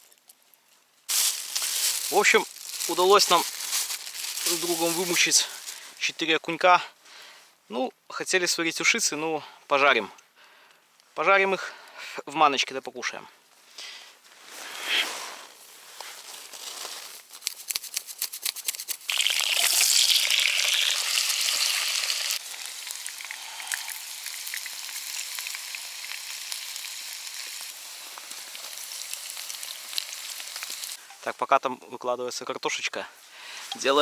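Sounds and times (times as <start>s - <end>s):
potatoes sizzling in oil: 1.1s - 5.8s, 17.7s - 31.1s
hot oil crackling in a frying pan: 17.5s - 31.0s.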